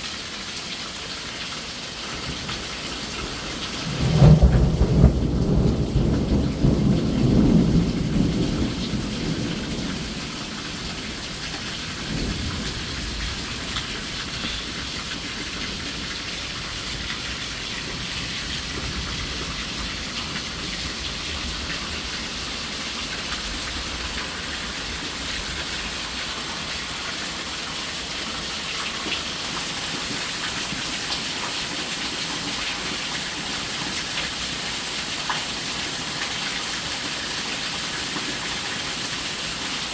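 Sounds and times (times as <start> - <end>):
heavy rain pouring: 0.0 - 39.9
thunder rumbling: 3.2 - 22.5.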